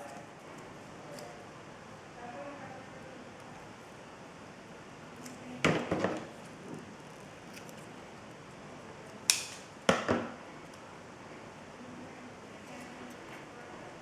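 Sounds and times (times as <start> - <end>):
scissors snipping paper: 7.4 - 7.9.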